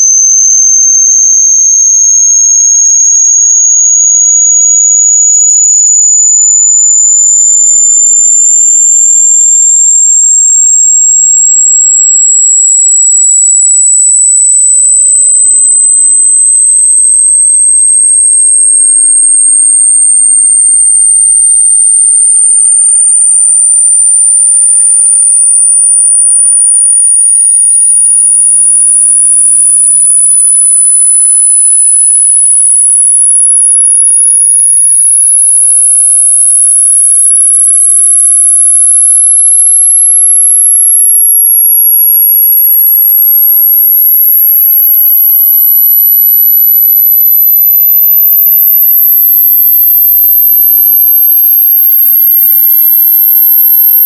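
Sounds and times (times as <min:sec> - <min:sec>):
high-pitched electronic tone: 0:17.6 - 0:50.3.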